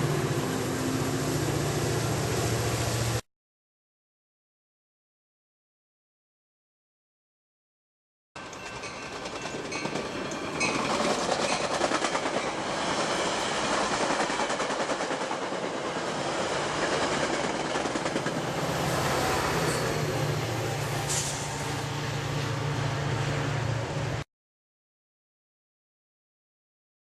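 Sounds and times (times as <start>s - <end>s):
train rushing noise: 0.0s - 3.2s, 8.4s - 24.2s
train wheels clicking over joints: 8.4s - 16.0s, 16.6s - 20.1s.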